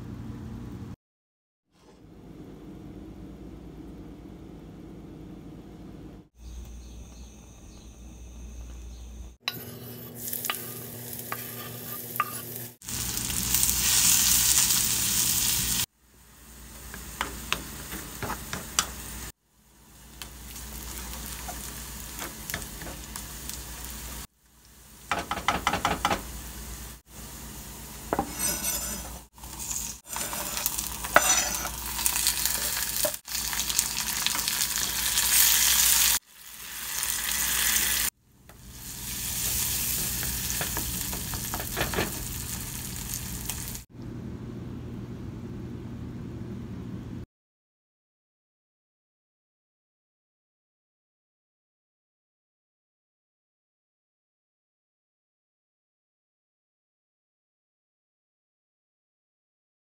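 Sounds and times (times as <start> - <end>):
food sizzling in oil: 9.4 - 43.9
utensil scraping a pan: 9.5 - 12.8, 28.1 - 33.2, 39.2 - 42.5.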